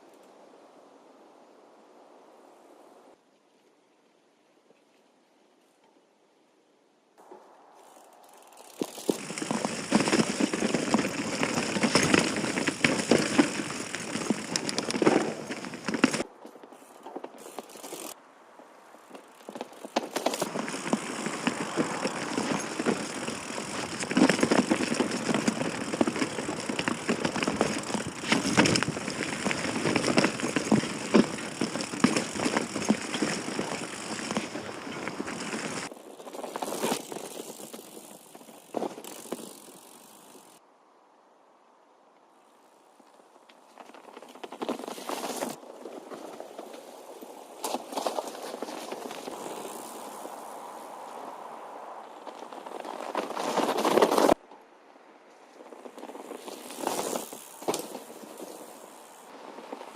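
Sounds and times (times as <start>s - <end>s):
bike tyre noise on trail: 7.2s - 40.7s, 42.2s - 59.9s
bike chain and frame rattling: 7.8s - 16.2s, 16.8s - 18.2s, 19.1s - 40.6s, 47.6s - 50.3s, 52.1s - 54.4s, 55.8s - 59.9s.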